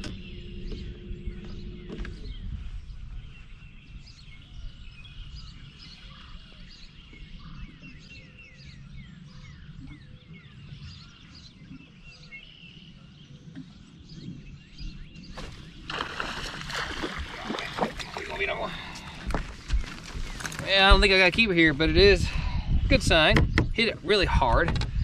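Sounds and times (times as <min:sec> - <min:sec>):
low steady rumble: 0:00.0 - 0:05.7
songbirds singing and chirping: 0:00.0 - 0:25.0.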